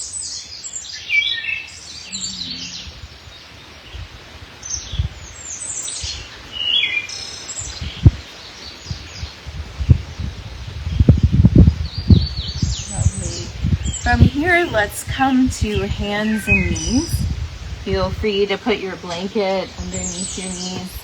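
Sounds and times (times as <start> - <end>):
songbirds singing: 0.0 - 21.0
low thumps: 2.0 - 4.3, 7.8 - 8.3.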